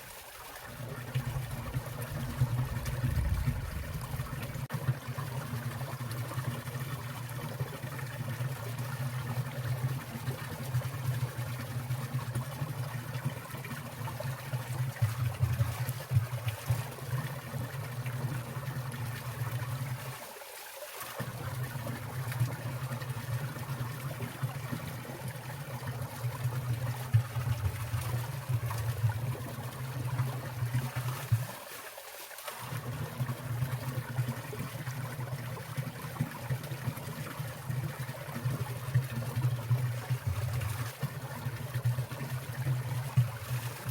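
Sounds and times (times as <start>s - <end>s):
stream water trickling and splashing: 0.0s - 43.9s
low rumble: 1.3s - 4.6s.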